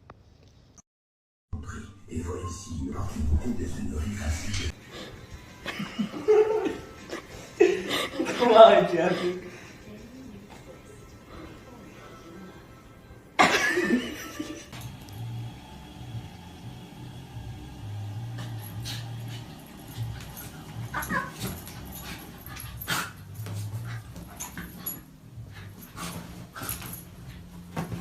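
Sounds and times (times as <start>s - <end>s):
low rumble: 1.6s - 4.8s
dog whimpering and yipping: 20.3s - 22.7s.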